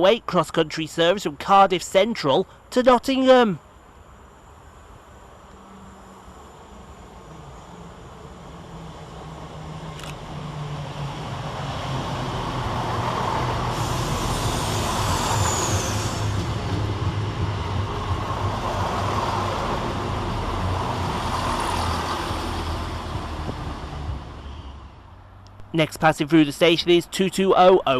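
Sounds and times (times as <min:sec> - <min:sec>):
diesel train engines humming: 0:00.0 - 0:27.9
train wheels on rails: 0:07.5 - 0:24.4
high squeal falling in pitch: 0:13.8 - 0:16.4.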